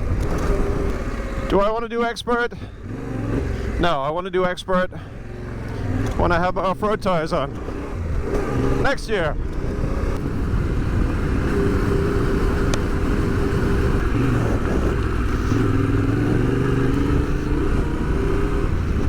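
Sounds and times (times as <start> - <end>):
tyre noise: 0.0 - 1.8, 5.0 - 19.0
motorcycle engine at low revs: 0.0 - 19.0
wind rushing: 7.4 - 19.0.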